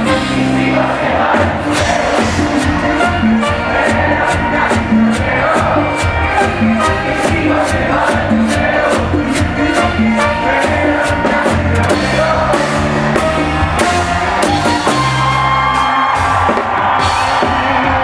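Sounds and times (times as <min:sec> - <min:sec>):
person singing: 0:00.0 - 0:16.2
live band music: 0:00.0 - 0:18.0.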